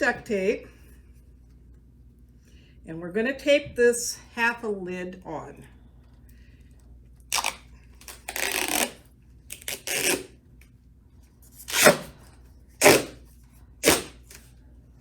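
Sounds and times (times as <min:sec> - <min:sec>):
duct tape ripping: 0:07.2 - 0:10.4, 0:11.6 - 0:12.2, 0:12.8 - 0:13.2, 0:13.8 - 0:14.5.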